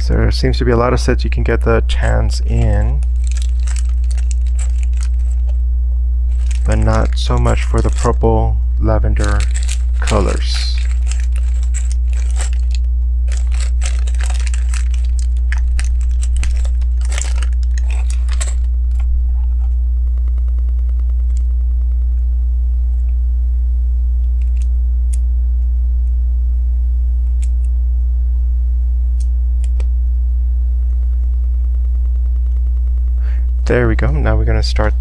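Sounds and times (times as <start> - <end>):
low hum: 0.0 - 35.0
plastic bricks rattling: 2.5 - 5.5, 6.3 - 8.2, 9.2 - 18.7.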